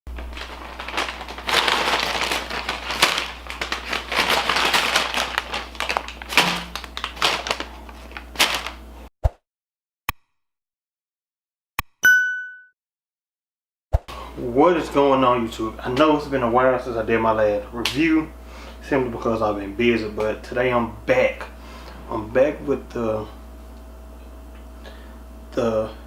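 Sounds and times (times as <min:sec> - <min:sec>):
crunching and crackling: 0:00.1 - 0:09.1
ringing ding: 0:12.0 - 0:12.7.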